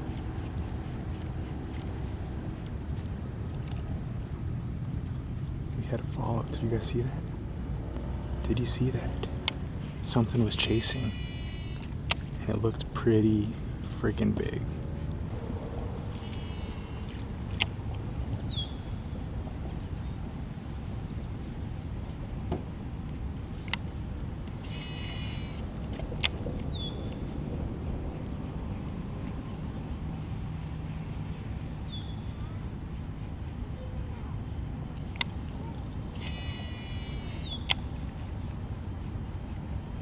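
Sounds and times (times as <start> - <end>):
rapid ticking bursts: 0.0 - 40.0
steady low background noise: 0.0 - 40.0
thin high insect whine: 0.0 - 40.0
sharp clicks: 0.1 - 3.9, 8.0 - 13.6, 16.1 - 18.5, 22.5 - 27.3, 34.8 - 38.3
short chirps of birds: 9.3 - 15.4, 16.0 - 40.0.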